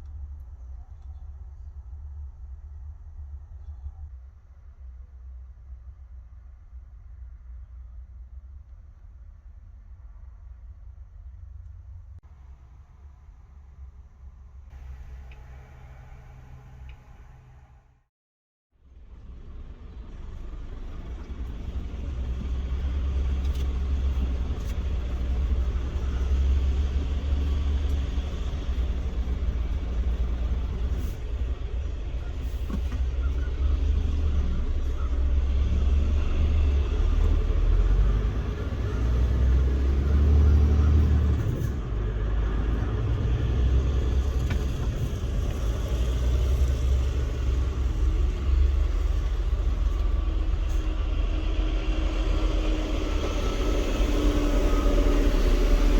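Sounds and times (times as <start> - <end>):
truck diesel engine rumbling: 18.9 - 55.9.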